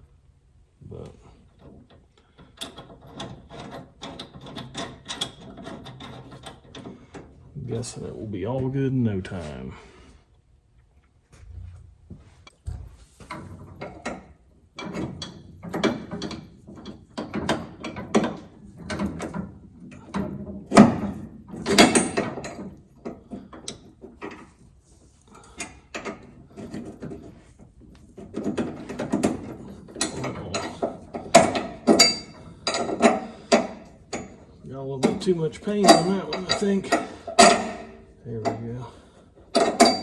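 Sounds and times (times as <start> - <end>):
hand tools clicking and ratcheting: 2.4 - 7.3, 28.0 - 40.0.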